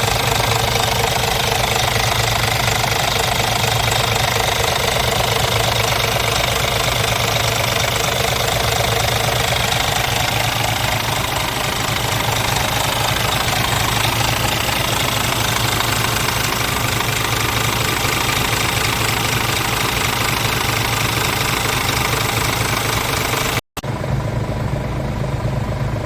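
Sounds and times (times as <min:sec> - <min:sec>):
truck diesel engine idling: 0:00.0 - 0:26.0.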